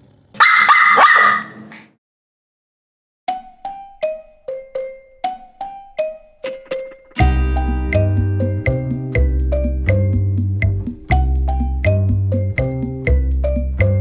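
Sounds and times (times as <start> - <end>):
dog barking: 0.4 - 1.6.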